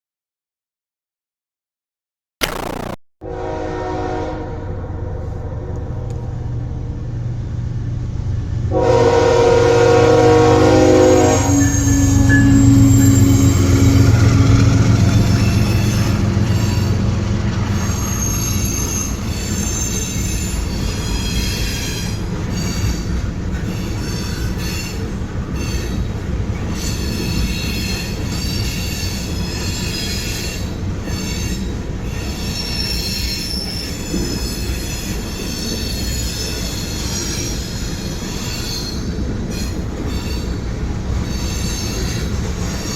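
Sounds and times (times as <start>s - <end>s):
locomotive horn: 3.2s - 4.8s, 8.7s - 16.0s
train rumbling past: 3.4s - 42.9s
train wheels squealing: 11.4s - 14.4s, 15.0s - 42.9s.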